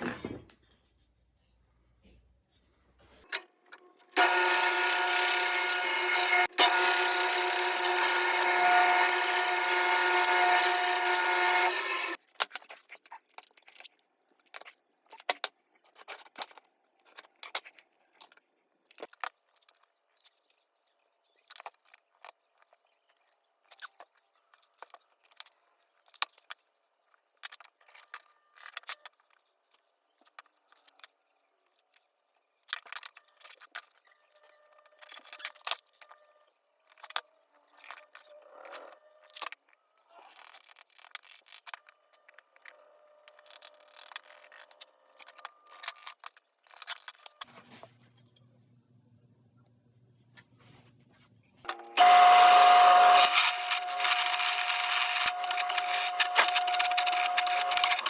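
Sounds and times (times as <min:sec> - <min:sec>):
power tool whining: 0:04.2 - 0:12.2, 0:51.7 - 0:58.0.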